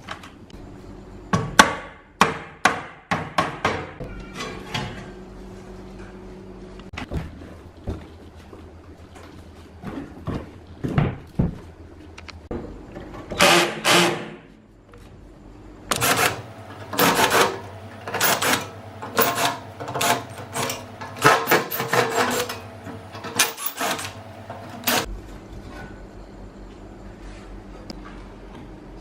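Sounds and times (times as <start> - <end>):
tools scraping and clattering: 15.9 - 26.0.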